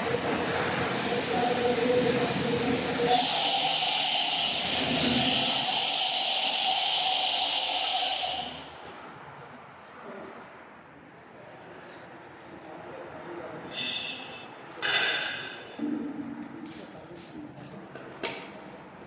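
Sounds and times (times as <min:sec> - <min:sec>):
pressure washer wand spraying: 0:00.0 - 0:08.6.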